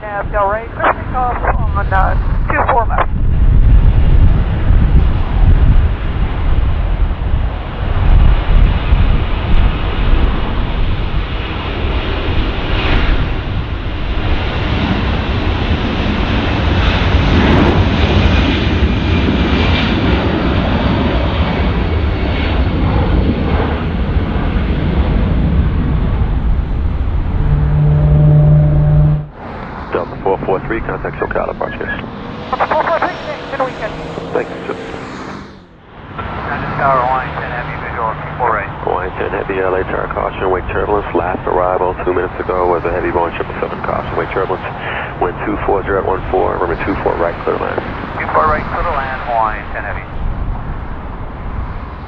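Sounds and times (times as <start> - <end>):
jet engines roaring: 0.0 - 52.0
high engine whine: 22.2 - 52.0.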